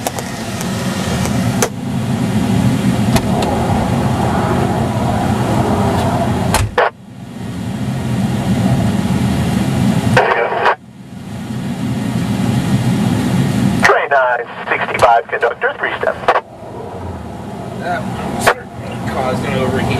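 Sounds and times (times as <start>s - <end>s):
car idling: 0.0s - 19.9s
car door shutting: 3.1s - 3.4s, 6.5s - 6.9s.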